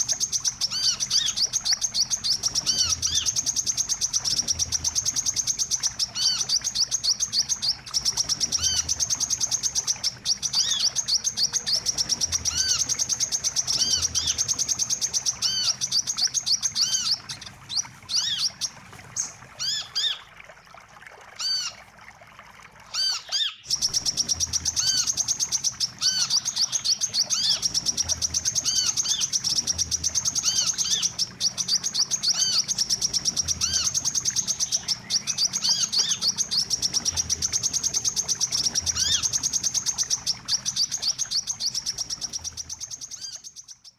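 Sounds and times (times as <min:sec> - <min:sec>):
bird twittering trill: 0:00.0 - 0:20.3, 0:22.9 - 0:43.9.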